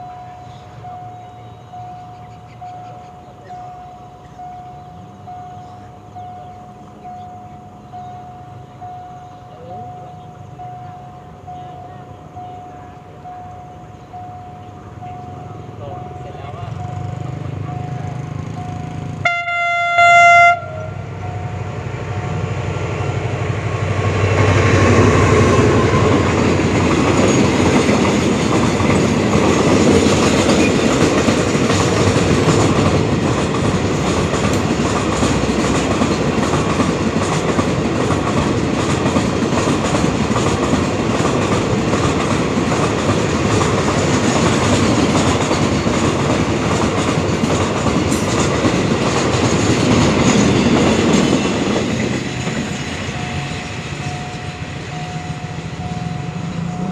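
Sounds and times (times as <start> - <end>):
freight train rumbling past: 0.0 - 56.9
locomotive horn blast: 19.2 - 21.4
train wheels clattering on rails: 21.2 - 56.9.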